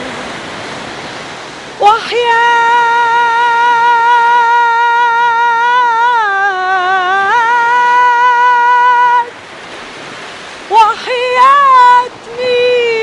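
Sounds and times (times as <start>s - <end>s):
steady rushing noise: 0.0s - 3.1s
woman singing with vibrato: 1.7s - 9.4s, 10.6s - 13.0s.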